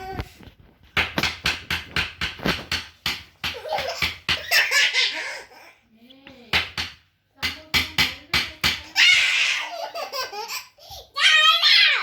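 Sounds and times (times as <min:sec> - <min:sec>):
small child laughing: 0:03.5 - 0:05.8, 0:09.2 - 0:11.1.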